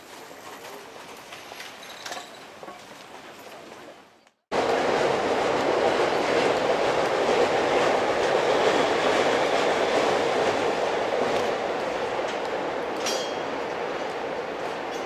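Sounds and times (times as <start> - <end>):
wheels clacking over rail joints: 0.0 - 3.9, 4.6 - 15.0
train rumbling past: 4.5 - 15.0.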